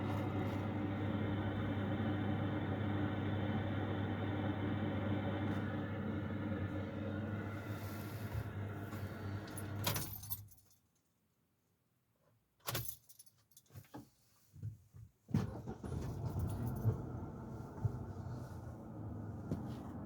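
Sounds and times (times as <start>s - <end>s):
keys jangling in ignition: 9.6s - 10.9s, 12.7s - 13.8s
car engine starting: 15.5s - 20.0s.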